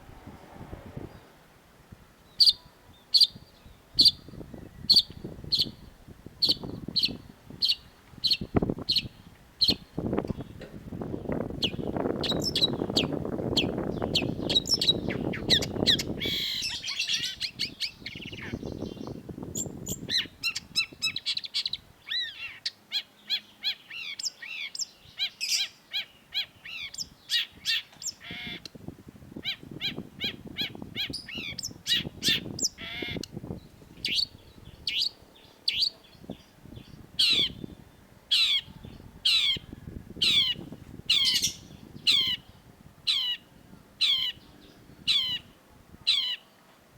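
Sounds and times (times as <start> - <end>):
low background rumble: 0.0 - 2.5
downward-sweeping bird calls: 0.0 - 28.7, 29.4 - 46.6
bird singing chirps and trills: 2.2 - 28.8, 29.4 - 46.5.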